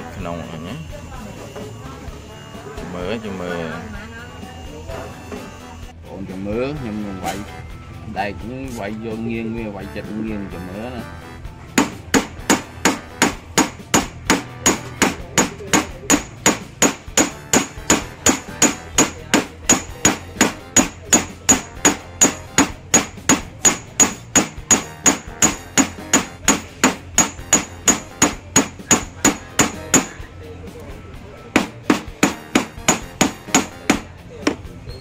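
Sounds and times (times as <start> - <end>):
hammer striking steel wire: 11.8 - 30.2, 31.6 - 34.6.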